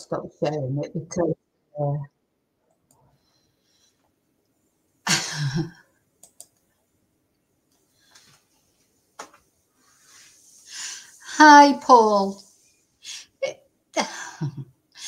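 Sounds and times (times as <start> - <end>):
computer mouse clicks: 6.2 - 6.7.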